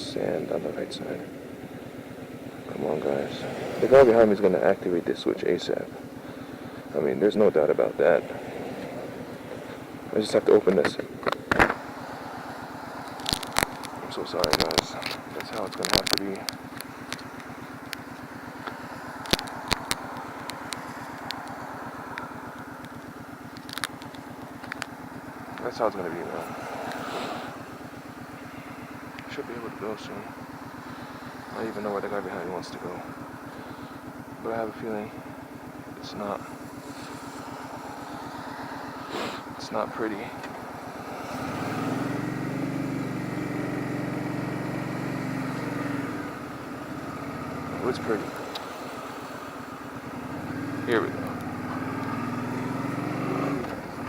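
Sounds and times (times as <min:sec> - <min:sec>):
motorcycle engine idling: 0:00.0 - 0:54.0
sharp ticks: 0:08.8 - 0:42.2, 0:44.8 - 0:51.7.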